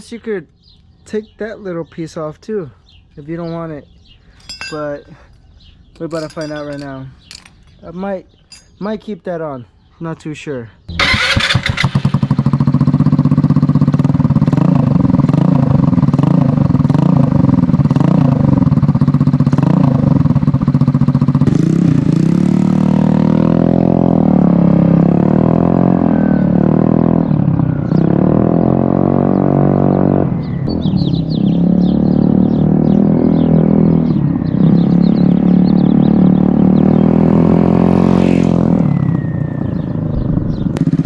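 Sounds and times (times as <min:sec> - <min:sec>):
scooter engine idling and revving: 0:10.9 - 0:41.0.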